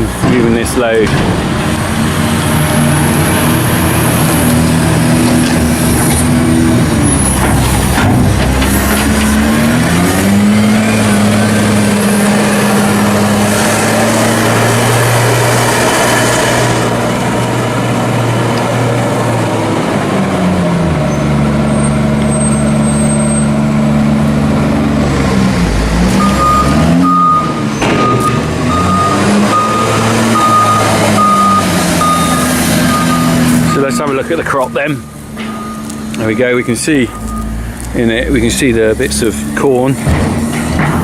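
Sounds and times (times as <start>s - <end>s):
diesel loader engine revving: 0.0s - 41.0s
reversing alarm beeping: 26.2s - 37.6s.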